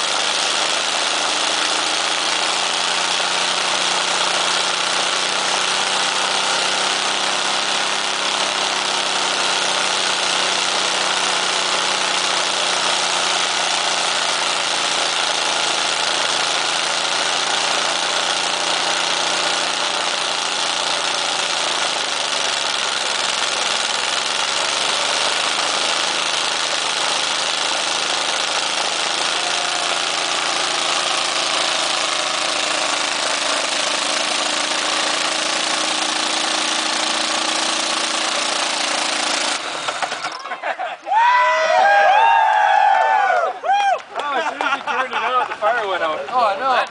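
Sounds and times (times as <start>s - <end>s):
car engine running: 0.0s - 40.2s.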